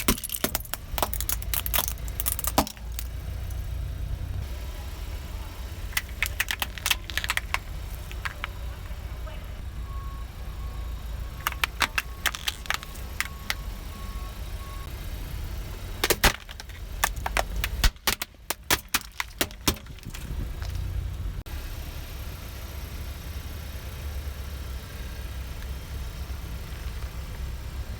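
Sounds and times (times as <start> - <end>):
tyre crushing brittle objects: 0.0 - 3.2, 5.9 - 8.6, 11.4 - 13.6, 16.0 - 20.9
car engine rumble: 0.0 - 27.9.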